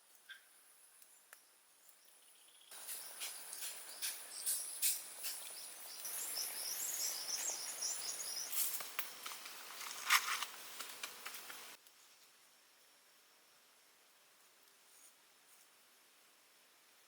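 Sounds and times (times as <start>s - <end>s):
insects trilling: 2.2s - 11.8s
bird twittering: 2.4s - 9.0s
small clicks and rustles: 8.5s - 12.4s.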